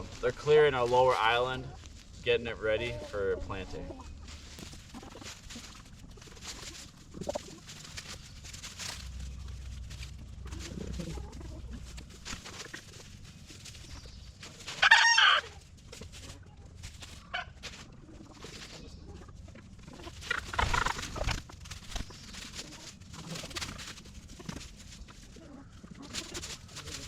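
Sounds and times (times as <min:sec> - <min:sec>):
chickens clucking: 0:00.0 - 0:27.0
loud chicken call: 0:14.7 - 0:15.6.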